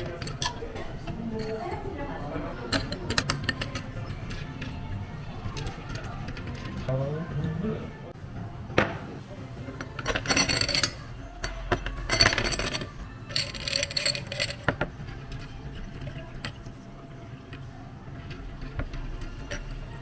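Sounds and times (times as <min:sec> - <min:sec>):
glassware and ice clinking: 0:00.0 - 0:04.8, 0:09.6 - 0:20.0.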